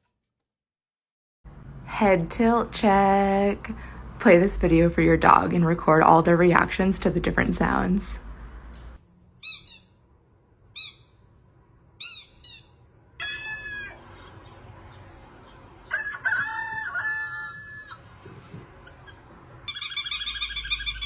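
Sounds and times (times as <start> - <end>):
high-pitched chirps and squeaks: 8.8 - 10.0, 10.7 - 11.3, 12.0 - 16.7, 17.4 - 21.0.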